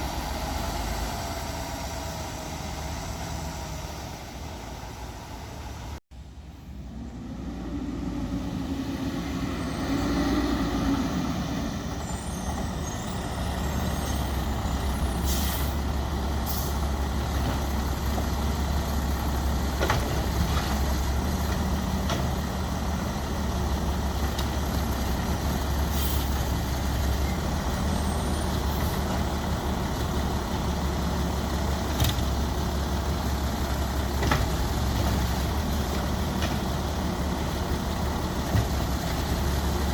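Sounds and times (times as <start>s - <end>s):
garbage truck diesel engine: 0.0s - 39.9s
air brake hisses: 15.2s - 15.8s.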